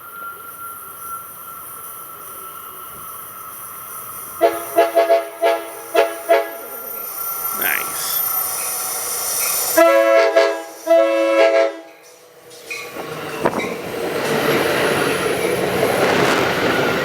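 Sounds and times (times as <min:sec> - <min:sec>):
train rolling rumble and wheel noise: 0:00.0 - 0:17.0
train air horn blasts: 0:04.4 - 0:06.9, 0:09.8 - 0:12.0.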